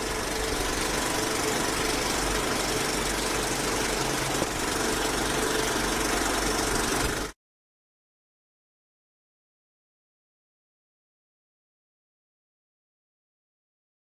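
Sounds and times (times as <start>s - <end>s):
stationary oil engine knocking: 0.0s - 7.4s.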